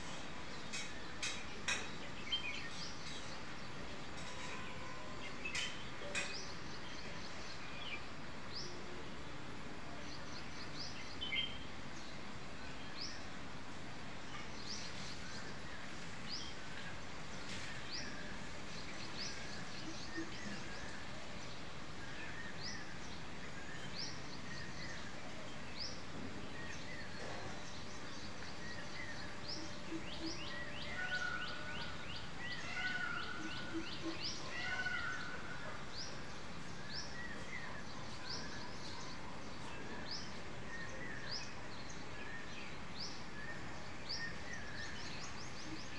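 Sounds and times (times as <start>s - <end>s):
outdoor background hiss: 0.0s - 45.9s
small birds chirping: 10.1s - 45.9s.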